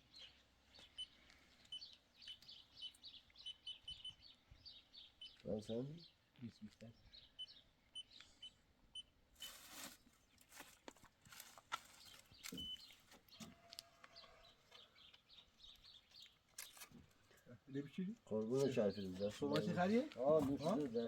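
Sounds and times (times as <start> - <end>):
bird chirps: 0.0 - 9.6, 12.0 - 21.0
rustle: 9.4 - 14.4.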